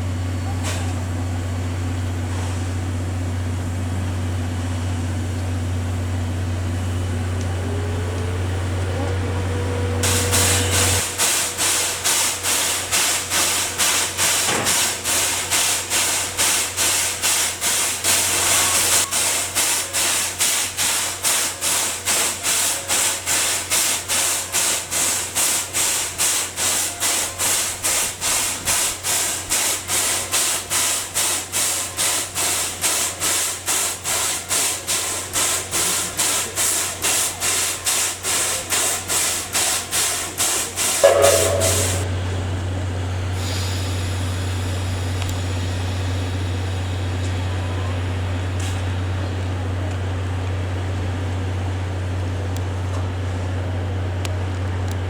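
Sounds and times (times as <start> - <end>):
steam locomotive exhaust chuffing: 0.0 - 54.2.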